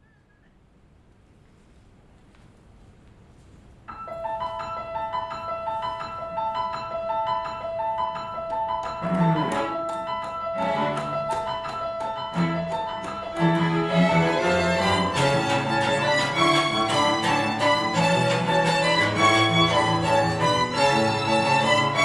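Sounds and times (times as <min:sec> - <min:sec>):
piano playing: 0:03.9 - 0:22.0
string quartet playing: 0:09.0 - 0:09.9, 0:10.6 - 0:11.5, 0:12.3 - 0:22.0.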